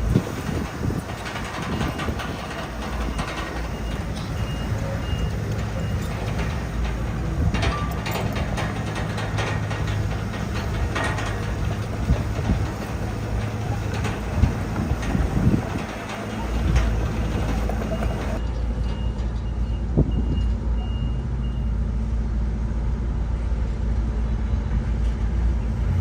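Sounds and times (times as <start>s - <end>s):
diesel machinery running: 0.0s - 26.0s
faint beep: 18.8s - 21.7s.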